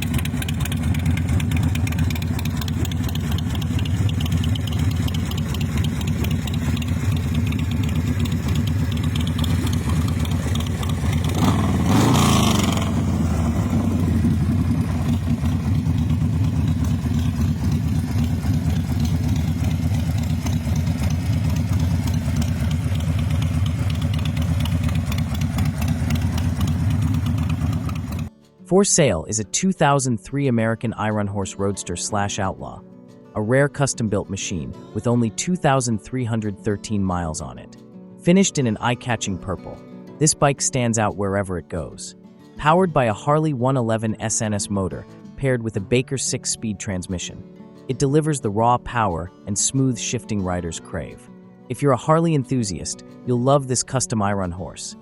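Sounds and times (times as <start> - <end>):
motorcycle engine idling: 0.0 - 28.3
motorcycle engine revving: 0.0 - 28.3.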